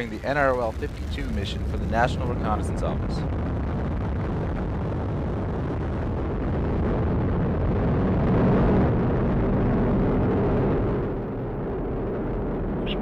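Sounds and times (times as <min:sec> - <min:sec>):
rocket engines roaring: 0:00.0 - 0:13.0.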